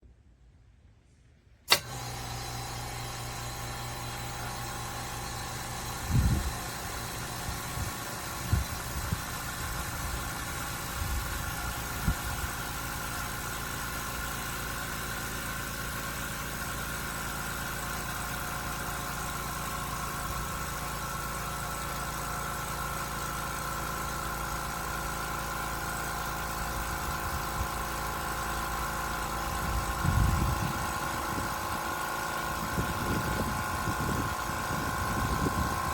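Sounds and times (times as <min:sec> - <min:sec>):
electric air compressor running: 0:01.7 - 0:35.9.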